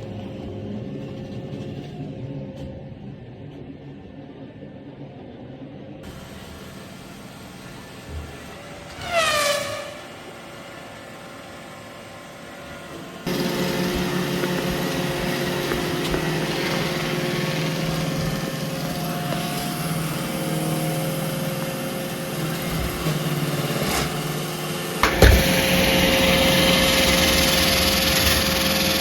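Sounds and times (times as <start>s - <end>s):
robot vacuum running: 6.0s - 29.0s.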